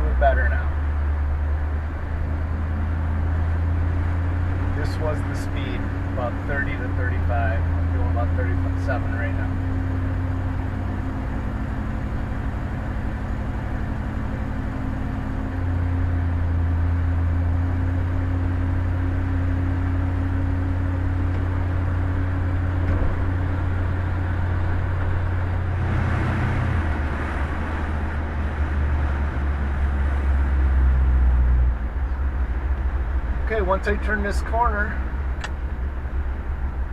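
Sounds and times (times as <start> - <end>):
car exhaust hum: 0.0 - 36.9
road noise: 0.0 - 36.9.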